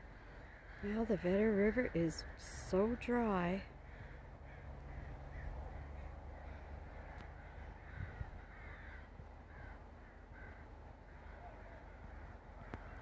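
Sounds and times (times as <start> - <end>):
faint bird calls: 0.0 - 13.0
low rumble: 3.6 - 13.0.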